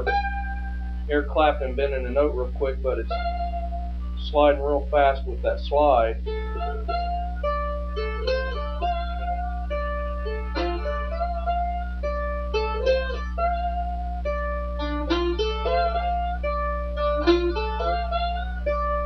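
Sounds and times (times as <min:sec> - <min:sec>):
low electrical hum: 0:00.0 - 0:19.0
slide mandolin blues lick: 0:00.0 - 0:19.0.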